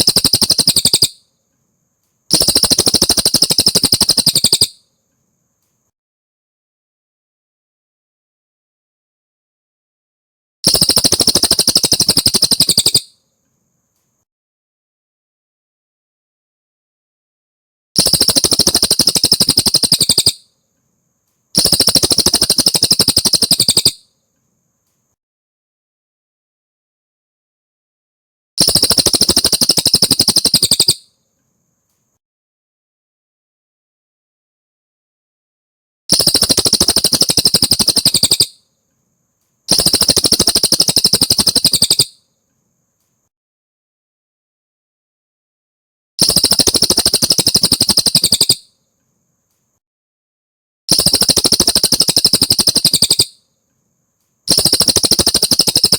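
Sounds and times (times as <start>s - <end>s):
songbird trilling: 0.0s - 1.2s, 2.3s - 4.8s, 10.7s - 13.1s, 18.0s - 20.4s, 21.6s - 24.0s, 28.7s - 31.0s, 36.2s - 38.6s, 39.7s - 42.2s, 46.2s - 48.6s, 50.9s - 53.3s.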